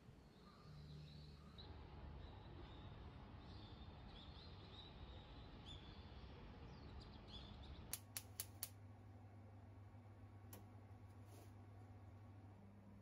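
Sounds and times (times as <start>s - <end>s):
outdoor background noise: 0.0s - 13.0s
faint bird chirps: 0.1s - 7.9s
sharp clicks: 7.9s - 8.8s.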